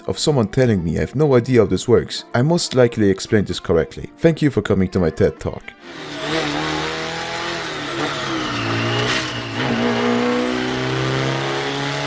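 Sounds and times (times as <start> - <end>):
car engine running: 5.8 - 12.0.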